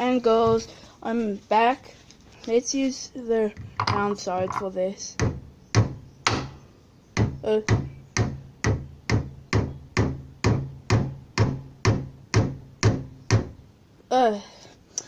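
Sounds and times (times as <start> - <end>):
hammer knocking on golf ball: 7.2 - 13.5.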